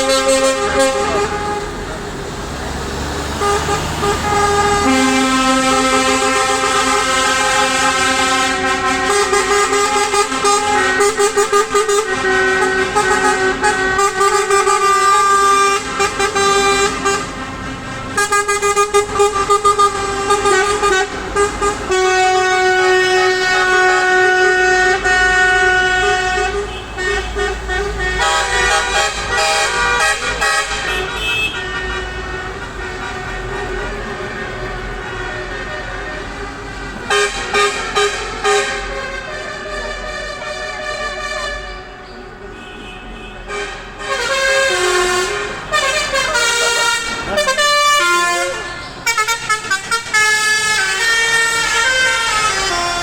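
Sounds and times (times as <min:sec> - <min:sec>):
truck air horns: 0:00.0 - 0:53.0
truck engine rumble: 0:00.0 - 0:53.0.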